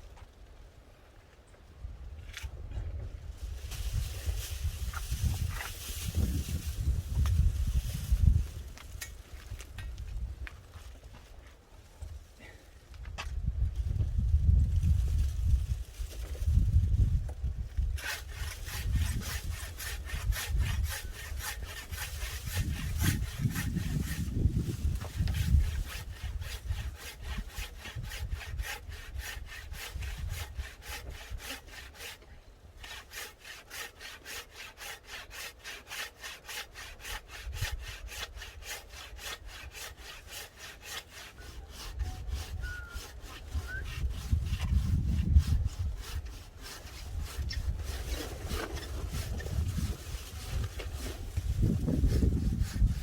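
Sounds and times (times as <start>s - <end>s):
hand saw cutting wood: 17.8s - 53.0s.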